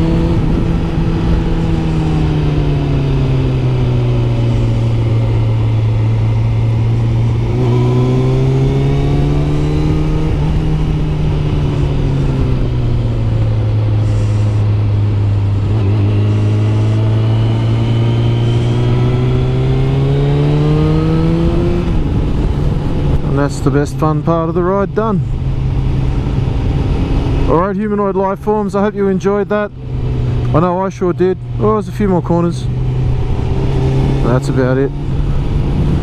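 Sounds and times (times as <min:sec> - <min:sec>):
wind rush: 0:00.0 - 0:27.7, 0:34.9 - 0:36.0
motorcycle engine accelerating: 0:00.0 - 0:36.0.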